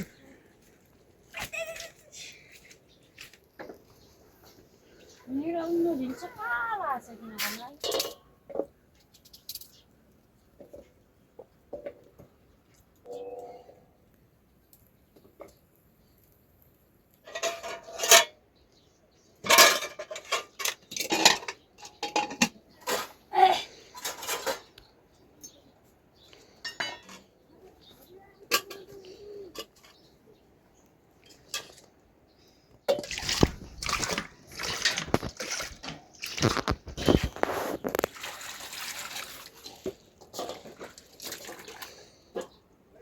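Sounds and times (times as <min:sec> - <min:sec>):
metal pots and dishes clattering: 0:07.8 - 0:08.7, 0:17.3 - 0:18.4, 0:19.4 - 0:23.2, 0:24.0 - 0:24.7, 0:26.6 - 0:27.3, 0:28.4 - 0:30.0, 0:31.3 - 0:31.9, 0:39.7 - 0:41.4.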